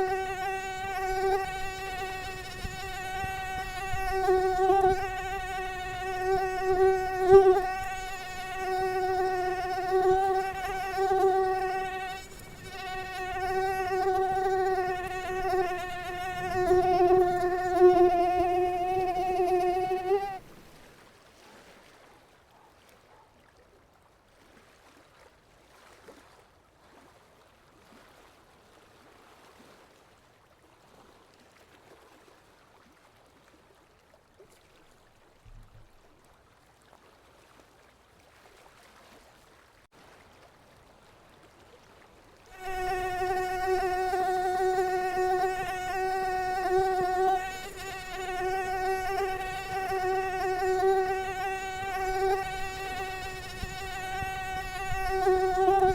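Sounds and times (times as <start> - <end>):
mosquito wing whine: 0.0 - 20.6, 42.6 - 55.9
faint hiss: 0.0 - 21.1, 42.5 - 55.9.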